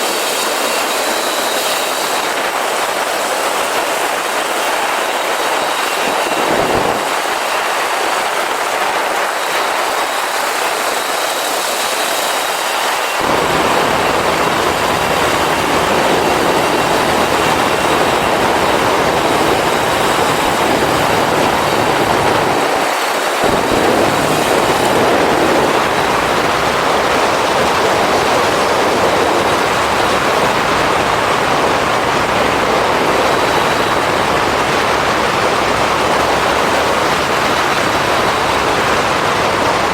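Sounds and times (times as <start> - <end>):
wind noise over microphone: 0.0 - 11.4, 13.1 - 39.9
motorcycle engine running: 13.2 - 22.8, 23.4 - 39.9.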